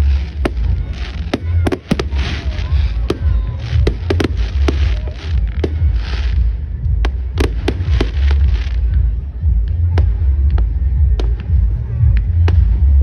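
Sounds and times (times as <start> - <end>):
fireworks hissing: 0.0 - 9.1
fireworks bangs and cracks: 0.0 - 13.0.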